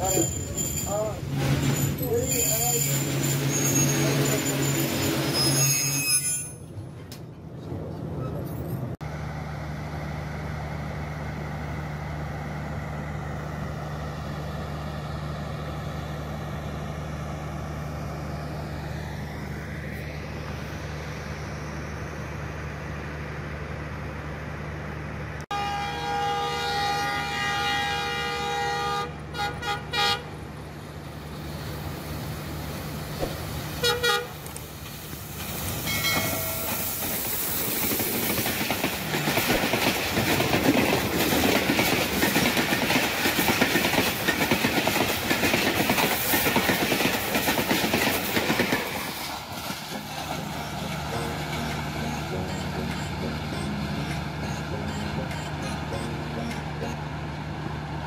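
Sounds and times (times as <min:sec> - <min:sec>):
diesel engine idling hum: 0:09.0 - 0:25.4
locomotive horn blasts: 0:25.5 - 0:30.4, 0:33.8 - 0:34.5
train wheels clattering on rails: 0:34.4 - 0:56.7.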